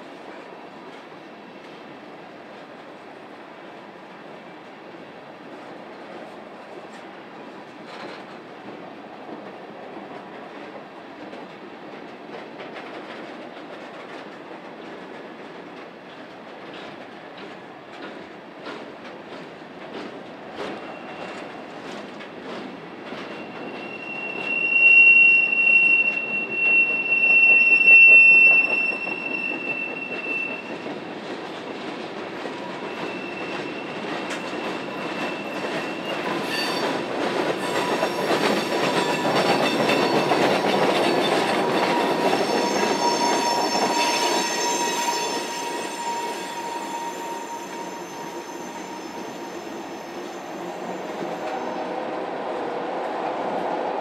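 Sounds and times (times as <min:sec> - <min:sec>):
rumble of passing train cars: 0:00.0 - 0:54.0
train wheels squealing: 0:20.5 - 0:51.8.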